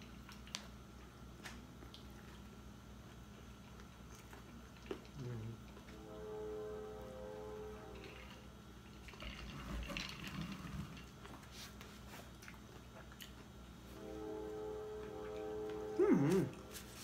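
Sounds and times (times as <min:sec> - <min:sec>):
close-up chewing with wet smacks: 0:00.0 - 0:05.9, 0:11.1 - 0:13.8
faint background music: 0:04.8 - 0:10.7, 0:13.8 - 0:17.0.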